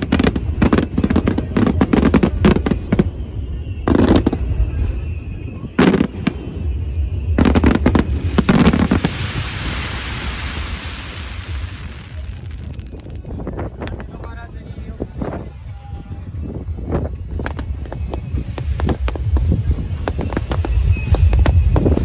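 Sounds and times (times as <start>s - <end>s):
fireworks bursting: 0.0s - 22.0s
fizzing crackle of sparks: 5.7s - 15.4s.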